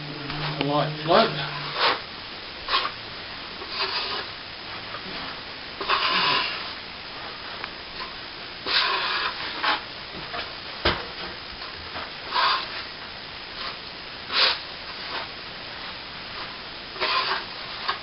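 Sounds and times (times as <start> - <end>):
trowel scraping strokes: 0.4 - 2.0, 2.7 - 3.0, 3.6 - 4.3, 5.8 - 6.7, 8.0 - 9.8, 12.3 - 12.9, 13.6 - 15.3, 16.4 - 18.0.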